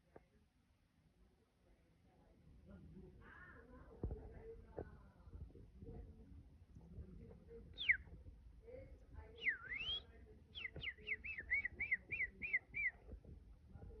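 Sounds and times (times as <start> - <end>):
clear whistled notes: 9.4 - 10.0, 10.6 - 13.0.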